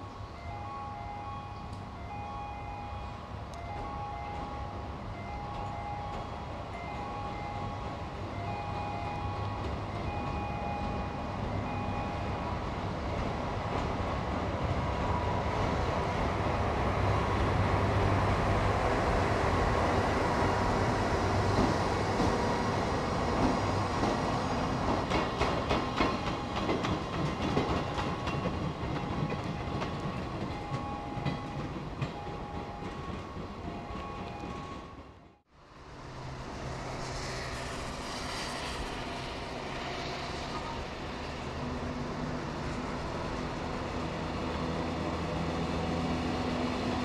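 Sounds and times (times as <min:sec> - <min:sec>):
train rumbling past: 0:00.0 - 0:47.0
wheels clicking over rail joints: 0:23.2 - 0:35.0.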